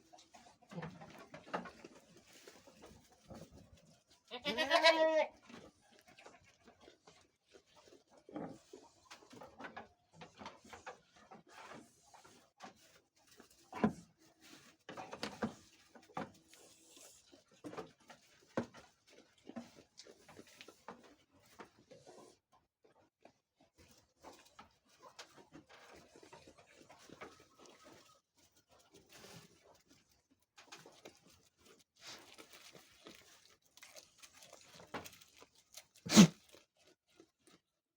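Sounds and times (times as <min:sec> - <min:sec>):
goats knocking and rustling: 0:00.0 - 0:16.9
goats chewing dry fodder: 0:00.0 - 0:37.9.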